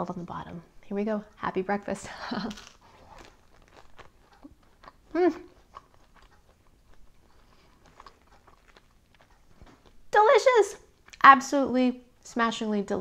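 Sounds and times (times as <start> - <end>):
toast crunching: 2.3 - 10.2.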